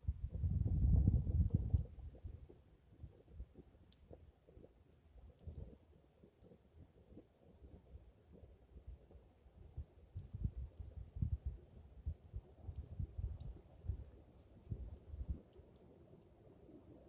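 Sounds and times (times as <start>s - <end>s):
wind buffeting microphone: 0.0s - 2.6s, 9.7s - 15.4s
wood fire crackling: 0.0s - 17.0s.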